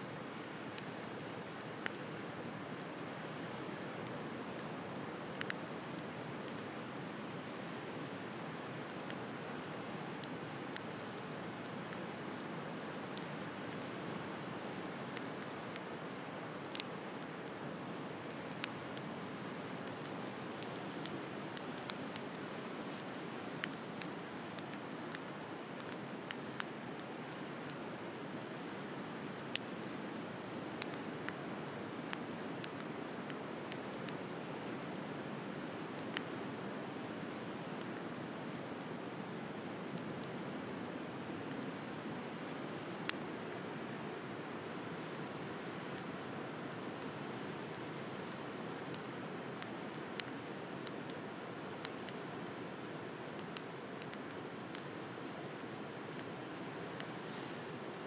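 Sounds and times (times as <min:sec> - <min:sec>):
campfire crackling and popping: 0:00.3 - 0:58.0.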